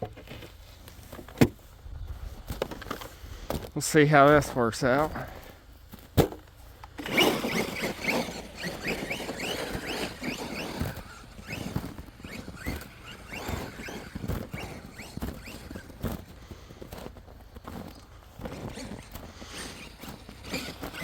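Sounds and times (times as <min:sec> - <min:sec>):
chassis and tire knocks: 0:06.0 - 0:16.2
electric motor whining: 0:06.8 - 0:21.0.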